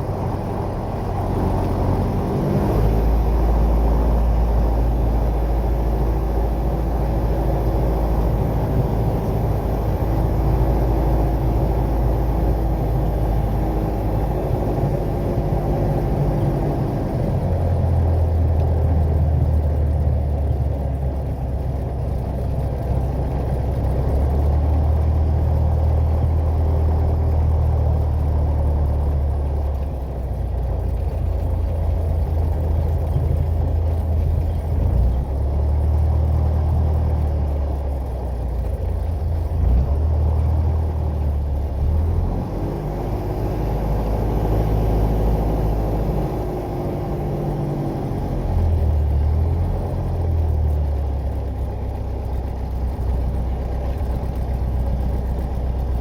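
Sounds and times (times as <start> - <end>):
aircraft engine and propeller droning: 0.0 - 24.1, 40.3 - 50.4.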